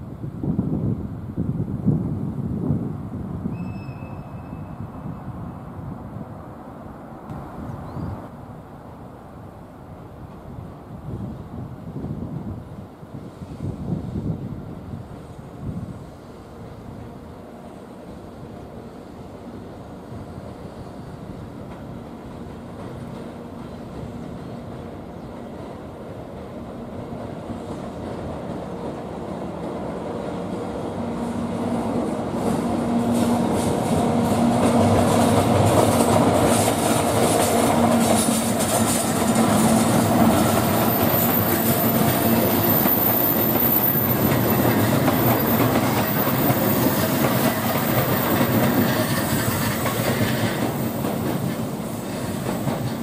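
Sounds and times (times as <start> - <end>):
high wheel squeal: 3.6 - 5.1, 40.5 - 51.0
train wheels clacking over rail joints: 32.4 - 53.0.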